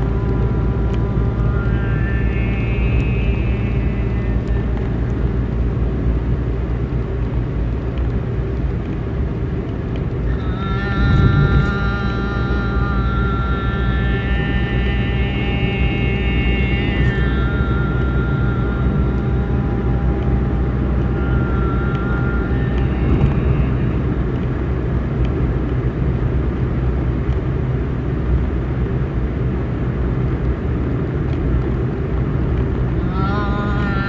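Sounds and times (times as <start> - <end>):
wavering pitched tone: 0.0 - 5.5, 10.3 - 24.6, 32.9 - 34.0
held pitched tones: 0.0 - 5.9, 10.3 - 24.8, 32.8 - 34.0
low drone: 0.0 - 34.0.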